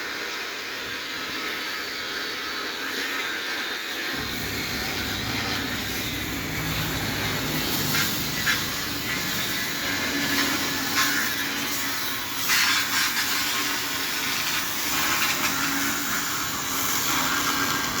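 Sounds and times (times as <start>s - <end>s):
tractor running: 4.1s - 18.0s.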